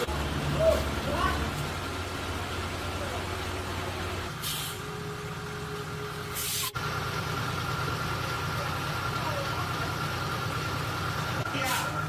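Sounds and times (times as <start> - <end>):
hissing air bursts: 4.3 - 4.8, 6.3 - 6.8.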